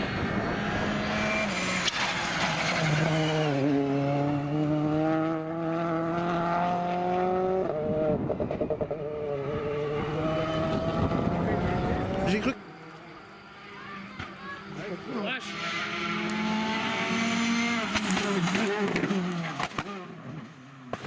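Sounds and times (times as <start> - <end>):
rally car engine accelerating: 0.0 - 21.0.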